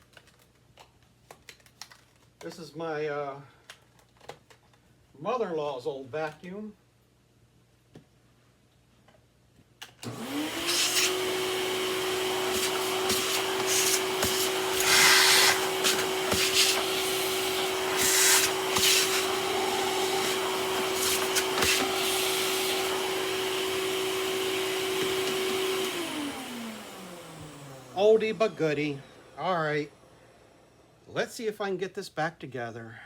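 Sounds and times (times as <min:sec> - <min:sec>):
vacuum sucking dirt with hissing: 0:10.0 - 0:30.6
vacuum cleaner motor whining: 0:10.0 - 0:30.9.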